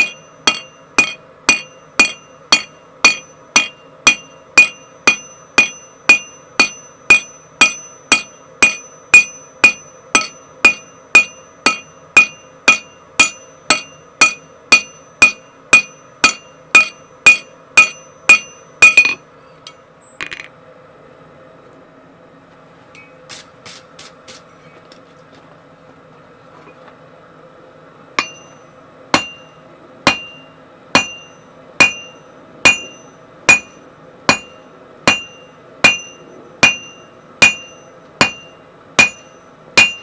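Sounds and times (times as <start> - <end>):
hammer ringing on anvil: 0.0 - 19.8, 28.2 - 40.0
faint steady hum: 0.0 - 40.0.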